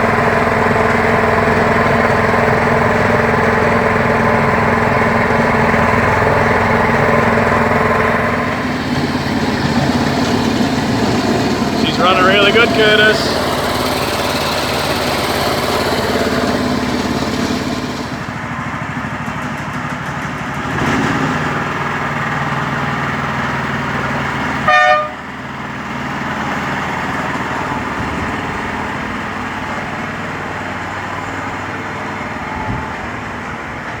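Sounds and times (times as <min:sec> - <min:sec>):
small locomotive engine running: 0:00.0 - 0:34.0
short horn toot: 0:24.7 - 0:25.2.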